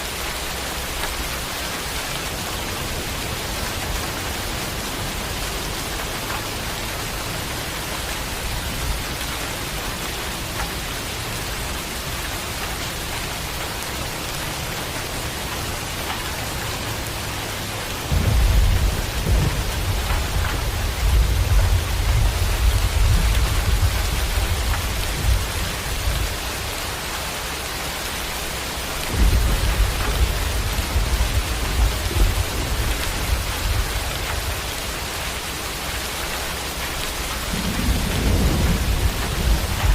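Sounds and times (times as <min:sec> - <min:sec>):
heavy rain: 0:00.0 - 0:39.9
thunder rumbling: 0:11.2 - 0:27.2, 0:28.3 - 0:35.2, 0:36.4 - 0:39.9.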